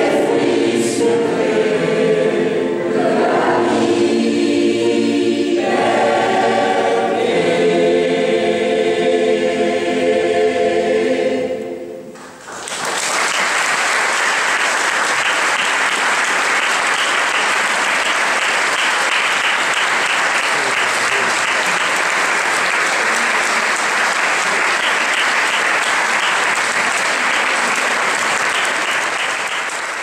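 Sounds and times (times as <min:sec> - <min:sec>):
audience applauding: 0:12.1 - 0:30.0.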